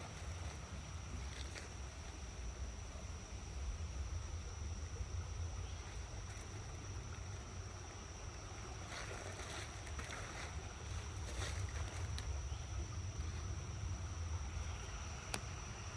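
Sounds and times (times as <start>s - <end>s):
rustling crackles: 8.9s - 12.4s.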